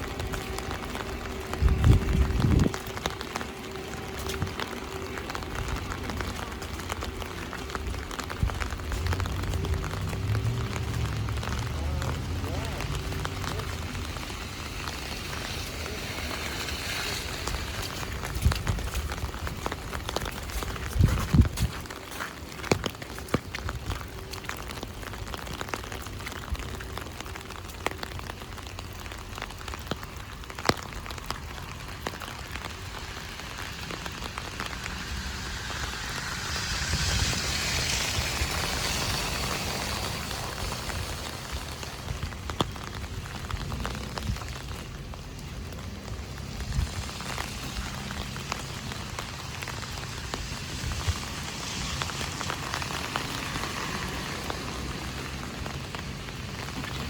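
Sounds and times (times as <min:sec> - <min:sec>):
low rumble: 0:00.0 - 0:21.7, 0:31.1 - 0:48.8
heavy rain drumming on umbrella: 0:00.0 - 0:57.0
rushing hiss: 0:33.0 - 0:42.1.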